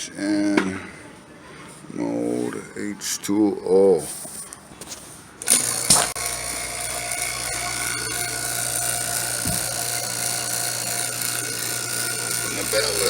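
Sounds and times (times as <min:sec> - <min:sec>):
vacuum pump motor whine: 0:05.4 - 0:13.0.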